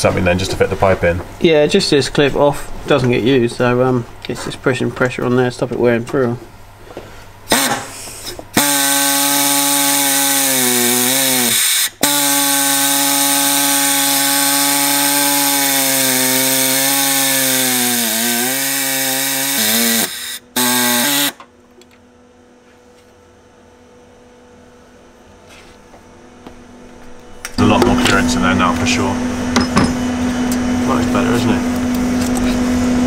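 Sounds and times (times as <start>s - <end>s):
electric power tool cutting: 7.5s - 7.9s, 8.6s - 21.4s
faint hum: 20.4s - 33.0s.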